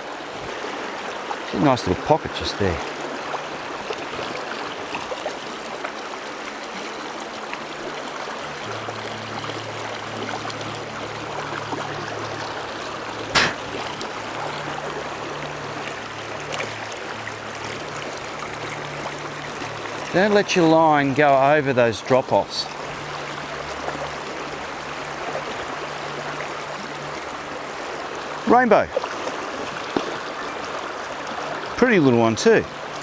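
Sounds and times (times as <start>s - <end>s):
stream running over rocks: 0.0s - 33.0s
sharp knock: 13.4s - 13.6s.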